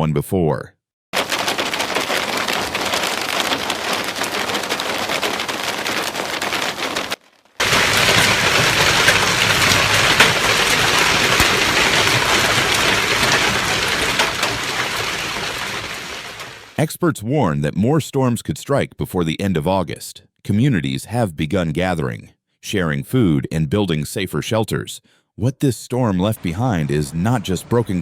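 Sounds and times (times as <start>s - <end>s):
heavy rain pelting hard surfaces: 1.2s - 16.8s, 26.4s - 28.0s.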